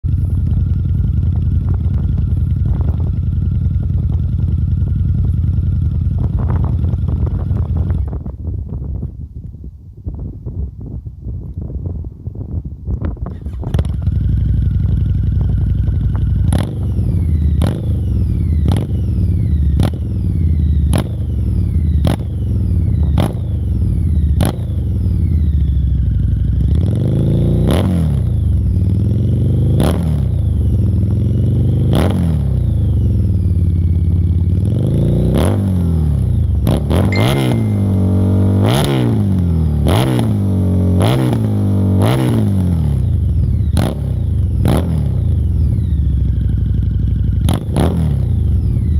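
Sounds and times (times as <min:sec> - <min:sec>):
motorcycle engine revving: 0:13.3 - 0:48.9.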